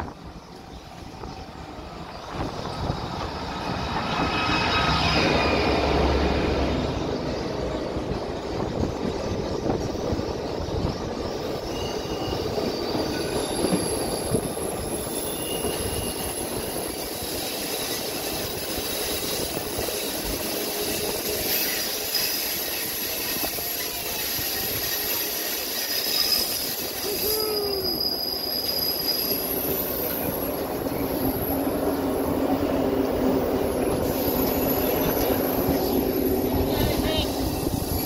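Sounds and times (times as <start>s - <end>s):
wheels rumbling on track: 0.0s - 38.0s
high wheel squeal: 10.8s - 32.0s, 33.8s - 38.0s.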